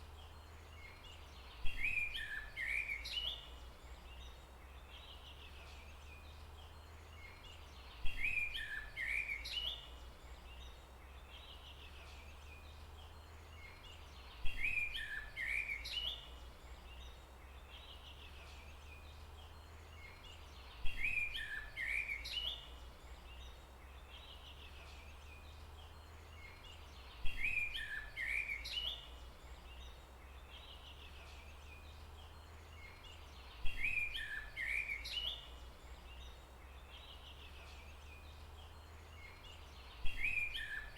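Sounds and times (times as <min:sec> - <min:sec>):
songbird twittering chirps: 0:00.0 - 0:40.9.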